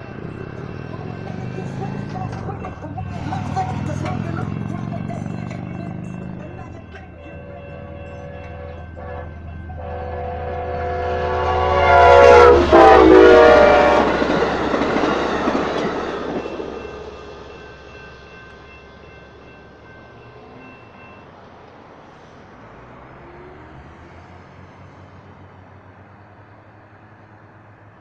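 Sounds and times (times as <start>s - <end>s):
crossing bell ringing: 0.0s - 26.2s
rumble and clatter of passing train: 0.0s - 28.0s
train horn blowing: 7.2s - 14.8s.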